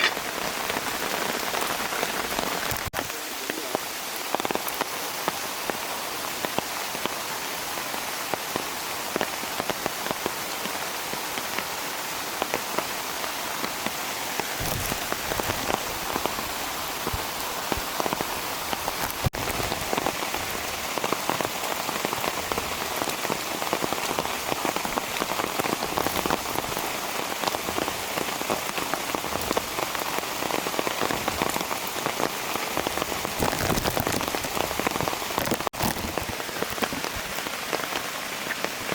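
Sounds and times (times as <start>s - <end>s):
raindrops striking close by: 0.0s - 38.9s
steady rain: 0.0s - 38.9s.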